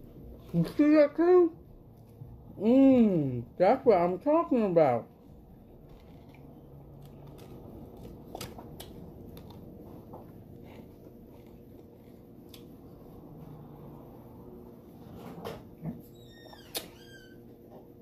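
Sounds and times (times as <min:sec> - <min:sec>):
low background hum: 0:00.0 - 0:18.0
chewing food: 0:05.8 - 0:12.7.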